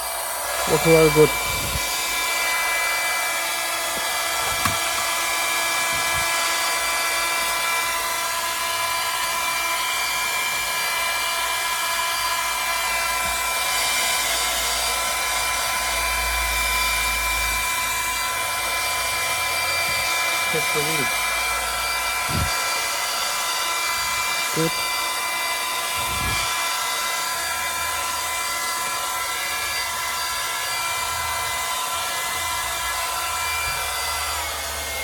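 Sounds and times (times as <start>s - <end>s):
hair dryer motor whine: 0.0s - 35.0s
rush of blown air: 0.6s - 2.4s.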